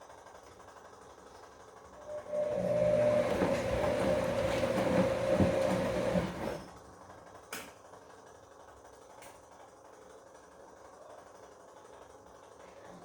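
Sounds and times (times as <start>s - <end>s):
washing machine running: 1.8s - 7.0s.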